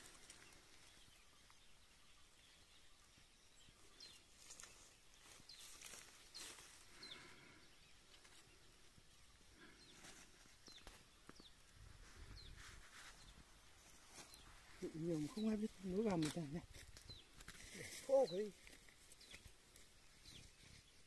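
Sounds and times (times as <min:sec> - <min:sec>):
faint high bird chirps: 0:00.1 - 0:19.5
dry brush rustling: 0:04.3 - 0:07.3, 0:09.9 - 0:21.0.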